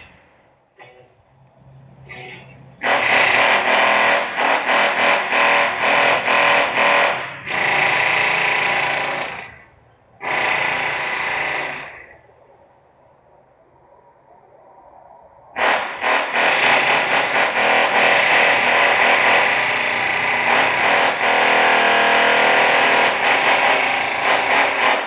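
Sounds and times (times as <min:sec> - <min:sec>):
industrial power tool bursts: 0:02.8 - 0:12.2, 0:15.6 - 0:25.0.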